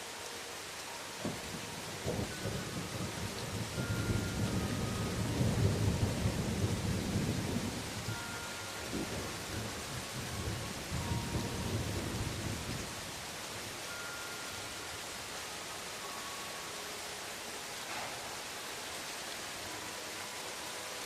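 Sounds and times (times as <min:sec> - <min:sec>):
rain falling on leaves: 0:00.0 - 0:21.0
low thunder rumble: 0:01.2 - 0:08.1.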